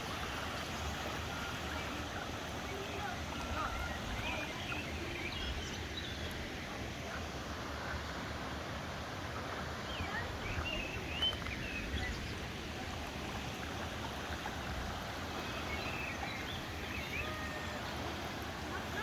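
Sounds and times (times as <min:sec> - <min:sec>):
stream running over rocks: 0:00.0 - 0:19.0
small birds chirping: 0:00.6 - 0:06.5, 0:09.8 - 0:14.6.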